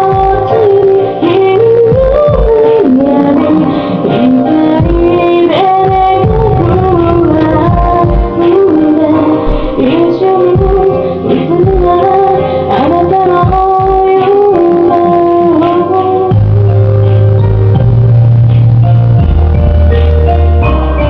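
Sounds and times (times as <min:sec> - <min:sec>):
woman singing a ballad: 0:00.0 - 0:18.0.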